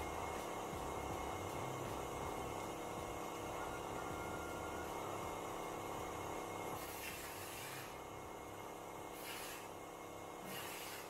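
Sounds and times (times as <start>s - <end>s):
steady low hum: 0.0s - 11.0s
spray gun hissing: 6.8s - 8.0s, 9.1s - 9.8s, 10.4s - 11.0s.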